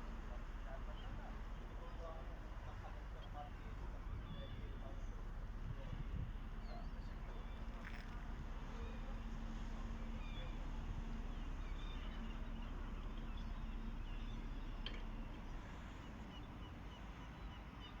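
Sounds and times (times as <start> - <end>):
faint steady hum: 0.0 - 18.0
wind rumble on microphone: 2.4 - 15.7.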